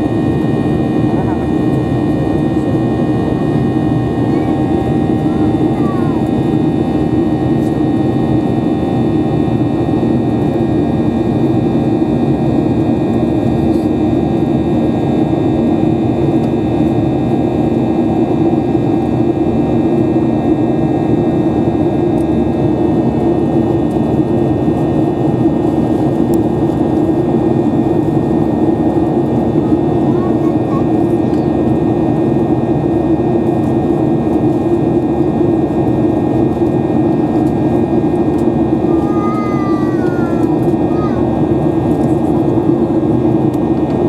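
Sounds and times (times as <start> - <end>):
jet engine cabin rush: 0.1 - 44.0.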